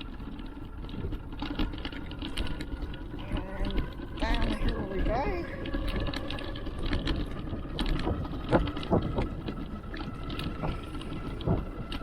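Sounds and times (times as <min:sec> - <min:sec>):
wind rumbling on microphone: 0:00.0 - 0:12.0
bicycle knocks and rattles: 0:05.6 - 0:12.0.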